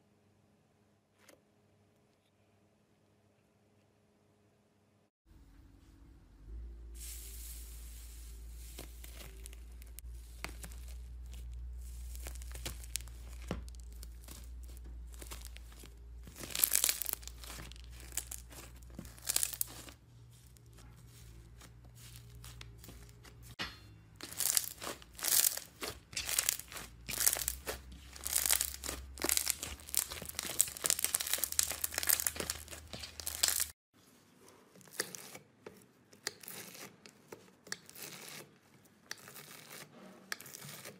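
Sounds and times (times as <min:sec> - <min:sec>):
beads popping crunchily: 0:08.6 - 0:20.0, 0:24.2 - 0:33.8
slime crackling and tearing: 0:08.6 - 0:23.6, 0:24.2 - 0:33.8.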